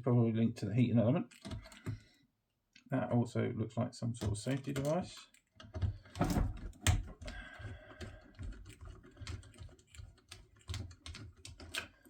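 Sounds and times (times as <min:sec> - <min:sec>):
small parts and tools clicking: 0:01.3 - 0:02.2, 0:04.2 - 0:12.0.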